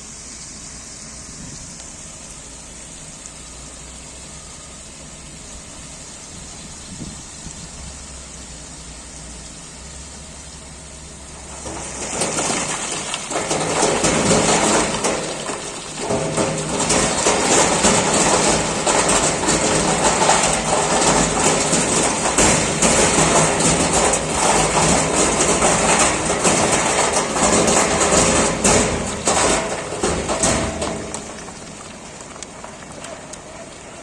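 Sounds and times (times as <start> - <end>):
rattling and scraping: 11.3 - 33.6.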